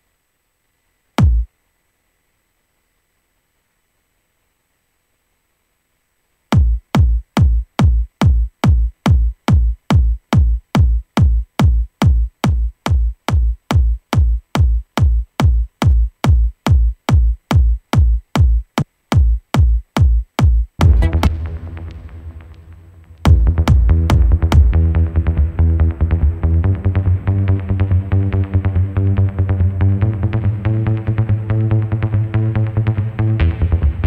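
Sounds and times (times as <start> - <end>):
electronic kick drum beat: 1.2 - 1.5, 6.5 - 34.0
cymbal wash: 20.8 - 23.3.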